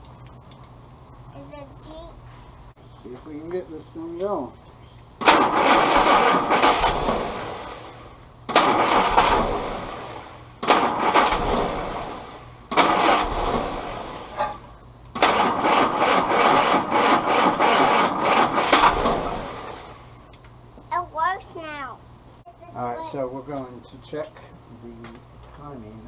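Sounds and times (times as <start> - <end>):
engine catching in bursts: 5.2 - 20.2.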